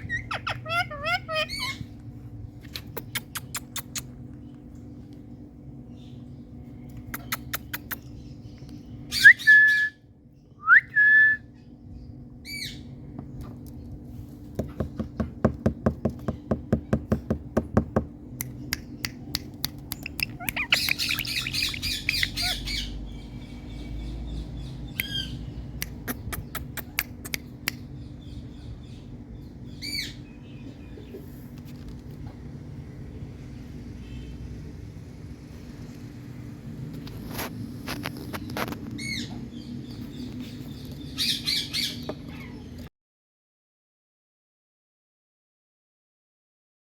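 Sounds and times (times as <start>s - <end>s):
parrot chattering: 0.0s - 1.9s, 19.9s - 22.9s
parrot squawking: 0.0s - 1.9s, 20.0s - 23.0s
steady low hum: 0.0s - 42.1s.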